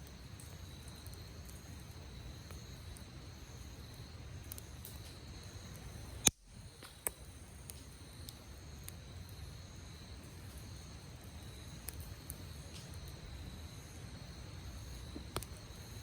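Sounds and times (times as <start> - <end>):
campfire crackling and popping: 0.0 - 16.0
insects trilling: 0.0 - 16.0.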